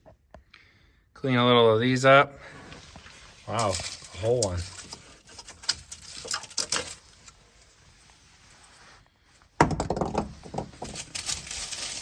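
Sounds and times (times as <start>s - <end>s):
clattering and rustling: 2.8s - 7.8s, 9.6s - 12.0s.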